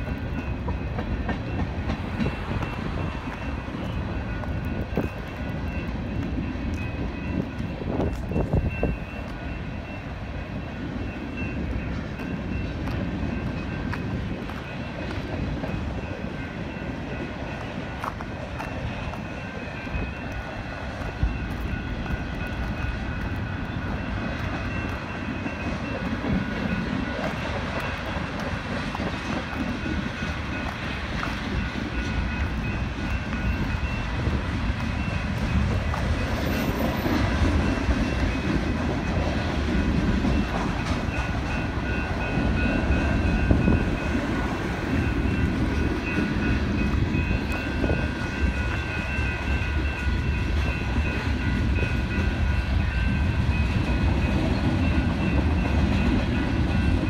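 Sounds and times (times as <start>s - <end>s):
crossing bells ringing: 0.0s - 57.0s
freight train rumbling over rails: 0.0s - 57.0s.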